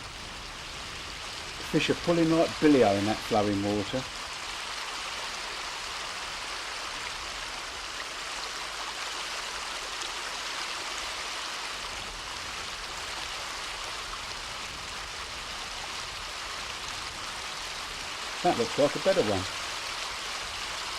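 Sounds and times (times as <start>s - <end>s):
fast-flowing river water: 0.0s - 20.9s.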